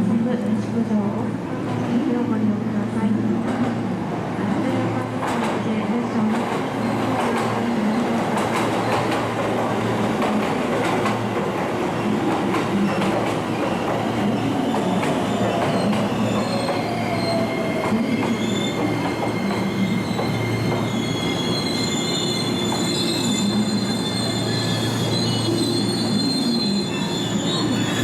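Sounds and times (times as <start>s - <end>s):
train wheels squealing on rails: 6.6s - 28.0s.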